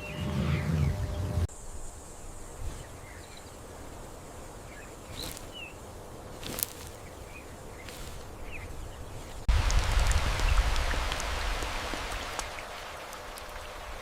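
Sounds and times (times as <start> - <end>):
faint chirps: 0.0 - 9.4.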